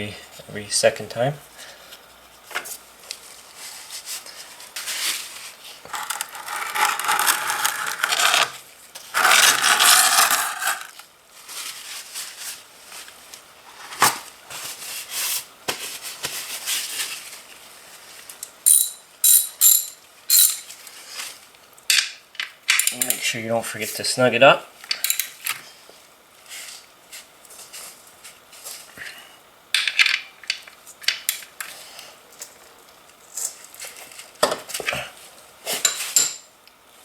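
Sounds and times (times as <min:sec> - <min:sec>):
metal parts and tools clinking: 0:09.2 - 0:10.9, 0:18.7 - 0:20.7.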